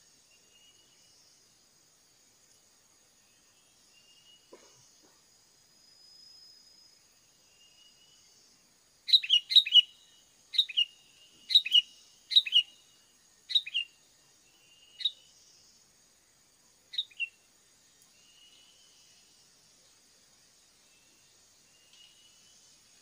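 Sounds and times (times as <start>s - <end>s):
sharp bird calls: 9.1s - 12.8s, 13.5s - 13.9s, 16.9s - 17.3s.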